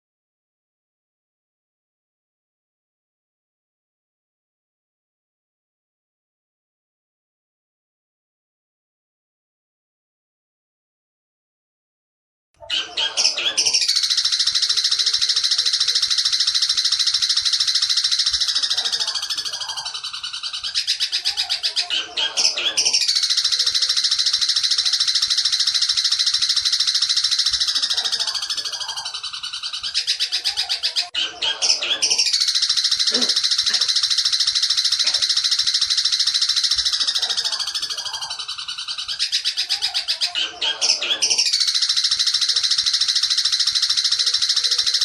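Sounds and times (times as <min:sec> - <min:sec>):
bird singing buzzy trills: 0:12.7 - 0:45.0.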